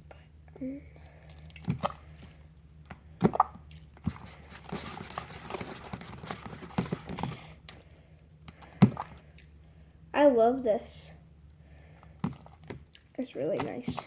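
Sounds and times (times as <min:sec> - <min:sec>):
wet slime squelching and popping: 0:01.0 - 0:09.6, 0:11.9 - 0:14.0.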